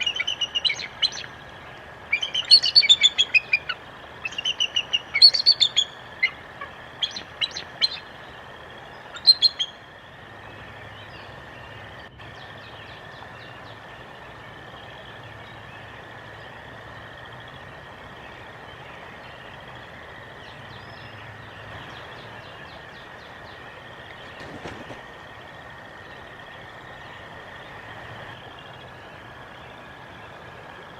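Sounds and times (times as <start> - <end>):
small birds chirping: 0.0 - 30.9
steady outdoor hiss: 0.0 - 30.9.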